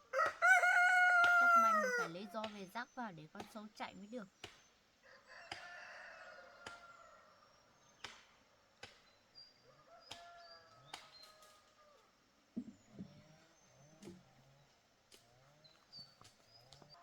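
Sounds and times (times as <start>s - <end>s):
rooster crowing: 0.1s - 2.2s, 5.0s - 7.3s.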